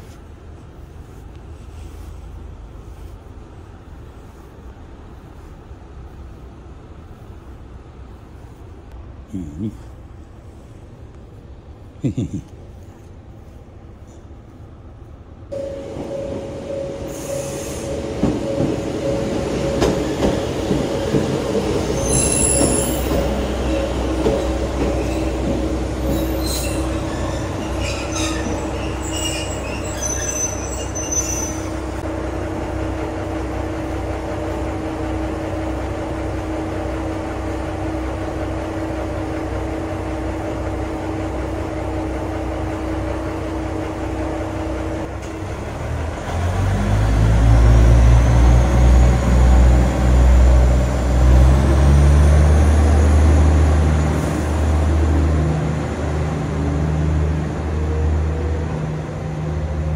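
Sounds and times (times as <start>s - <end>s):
diesel railcar engine drone: 0.0s - 59.9s
high wheel squeals and clicks: 21.8s - 31.8s.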